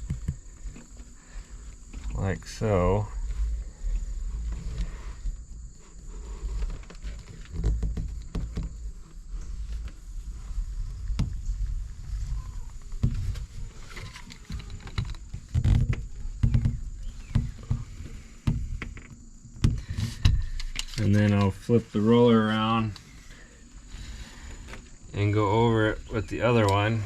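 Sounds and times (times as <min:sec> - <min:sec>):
heavier handling thumps: 0:00.0 - 0:20.6.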